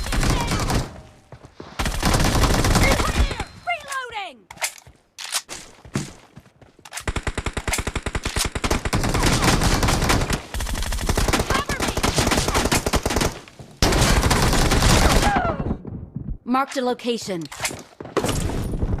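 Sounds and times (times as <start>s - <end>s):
video game automatic gunfire: 1.8s - 3.3s, 7.1s - 15.3s.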